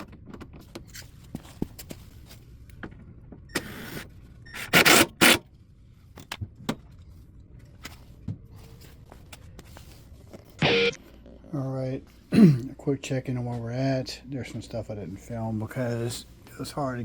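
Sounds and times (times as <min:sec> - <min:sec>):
loud short bursts: 0:10.6 - 0:11.0.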